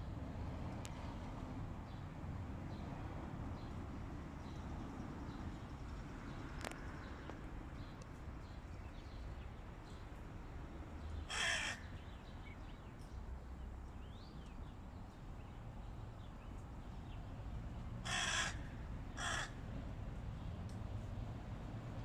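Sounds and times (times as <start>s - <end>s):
crow cawing: 11.3s - 12.0s, 18.0s - 19.6s.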